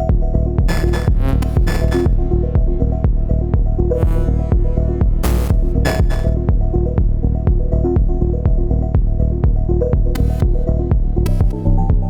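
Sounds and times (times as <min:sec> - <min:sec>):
kick drum pulse: 0:00.0 - 0:12.0
repeating synth notes: 0:00.7 - 0:02.2, 0:04.0 - 0:06.4.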